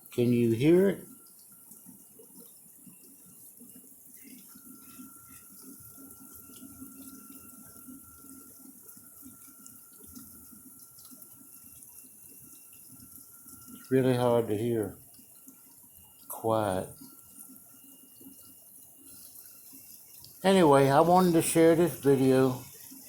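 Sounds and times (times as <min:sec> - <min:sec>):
thin steady whine: 0:00.0 - 0:23.0
water spraying inside dishwasher: 0:00.0 - 0:23.0.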